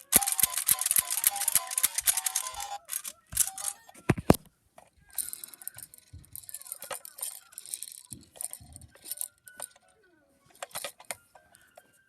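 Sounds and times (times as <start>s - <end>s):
electronic toy tune: 0.0s - 3.8s
toys clattering and rattling: 0.0s - 11.6s.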